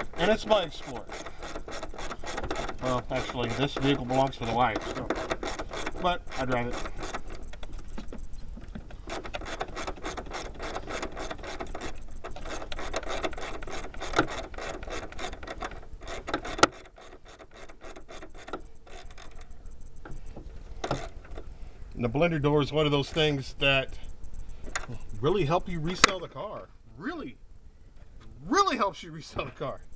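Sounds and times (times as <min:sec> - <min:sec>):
sharp loud ratchet click: 0:00.0 - 0:08.4, 0:09.0 - 0:20.2
socket ratchet clicking: 0:00.0 - 0:20.2.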